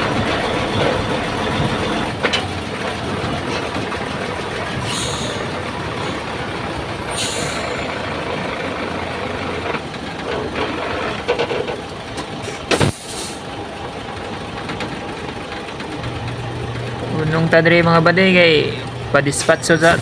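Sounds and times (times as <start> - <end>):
diesel truck engine idling: 0.0 - 9.9, 16.0 - 20.0
short air hisses: 12.8 - 13.4.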